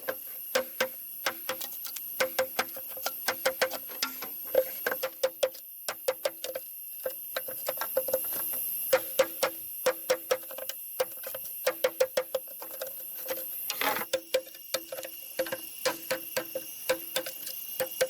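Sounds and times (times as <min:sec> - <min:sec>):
sharp taps on hollow bamboo: 0:00.0 - 0:06.4, 0:08.9 - 0:12.4.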